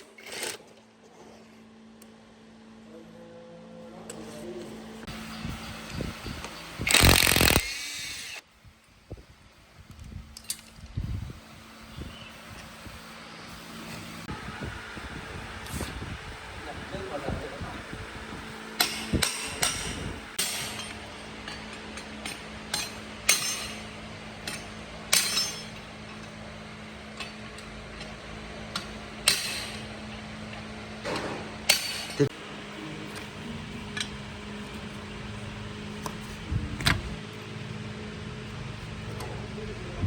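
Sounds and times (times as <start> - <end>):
steady low hum: 0.7 - 40.0
metal tools clinking on metal: 18.8 - 26.4.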